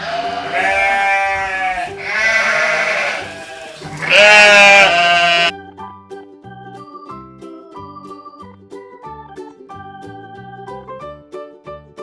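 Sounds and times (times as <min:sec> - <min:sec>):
sheep bleating: 0:00.0 - 0:05.5
light keyboard music: 0:00.1 - 0:12.0.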